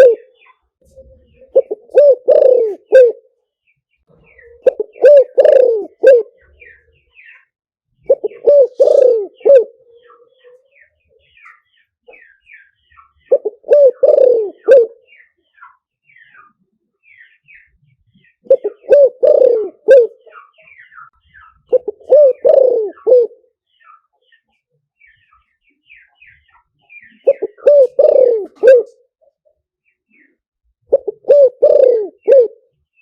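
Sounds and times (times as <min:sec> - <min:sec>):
dove cooing: 0:00.0 - 0:03.3, 0:04.2 - 0:06.8, 0:08.0 - 0:10.6, 0:13.2 - 0:15.1, 0:18.4 - 0:21.0, 0:21.6 - 0:23.5, 0:27.0 - 0:29.1, 0:30.9 - 0:32.7
small birds chirping: 0:00.0 - 0:33.0.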